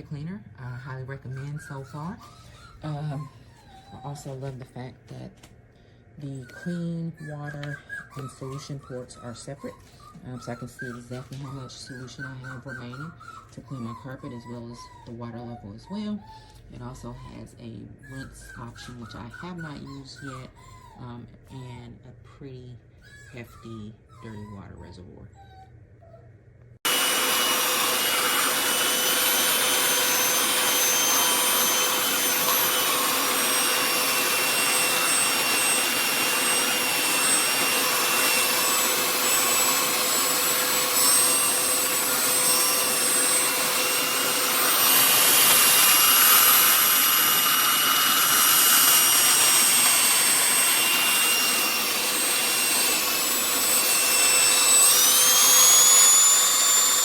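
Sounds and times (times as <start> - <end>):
carpet cleaner motor whine: 26.8 - 57.0.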